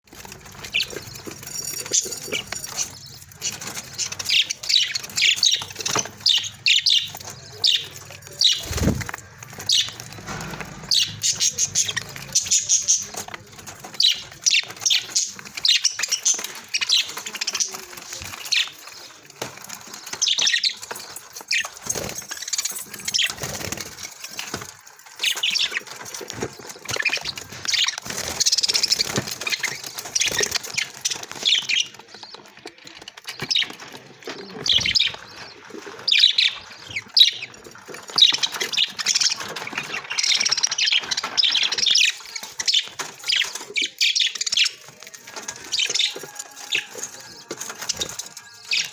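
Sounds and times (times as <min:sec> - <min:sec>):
budgerigars chirping: 0:02.0 - 0:13.4.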